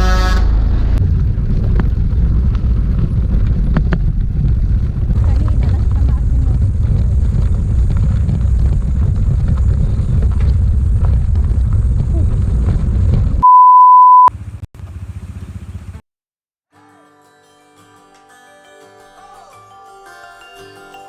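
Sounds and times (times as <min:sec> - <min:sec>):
low rumble of moving vehicle: 0:00.0 - 0:13.4, 0:14.3 - 0:16.0
high-pitched beep: 0:13.4 - 0:14.3.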